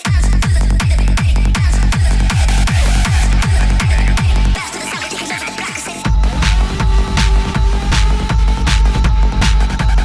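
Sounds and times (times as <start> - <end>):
electronic dance music: 0.0 - 10.0
heavy kick drum: 0.0 - 10.0.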